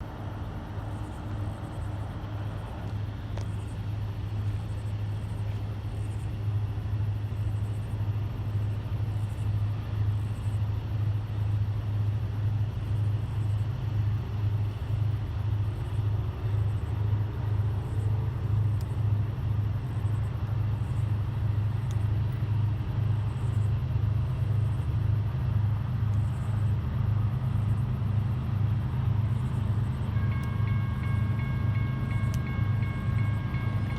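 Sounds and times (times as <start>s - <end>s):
locomotive engine rumble: 0.0s - 33.9s.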